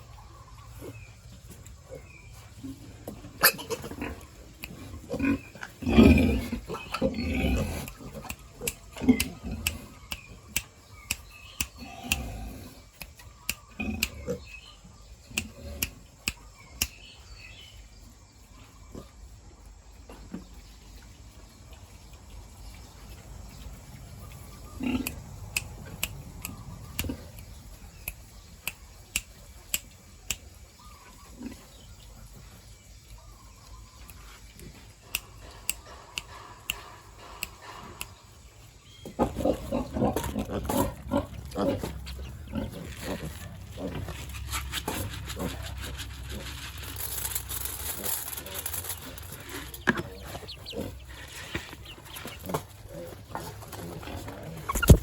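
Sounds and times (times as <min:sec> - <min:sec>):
pigs grunting: 0:03.2 - 0:10.0, 0:11.7 - 0:12.9, 0:24.6 - 0:27.4, 0:39.0 - 0:54.8.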